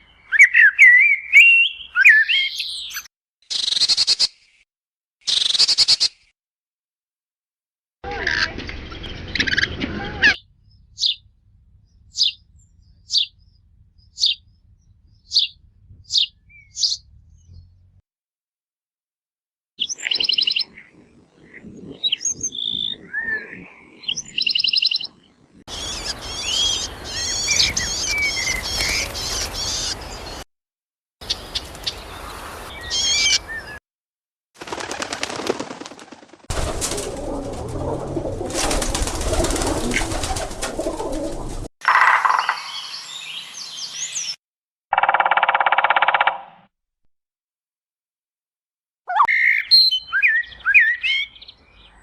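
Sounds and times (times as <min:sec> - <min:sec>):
birds chirping and whistling: 0:00.2 - 0:04.4, 0:08.6 - 0:11.3, 0:11.9 - 0:17.7, 0:19.8 - 0:20.9, 0:21.5 - 0:30.4, 0:31.3 - 0:33.8, 0:42.2 - 0:44.4, 0:49.1 - 0:52.0.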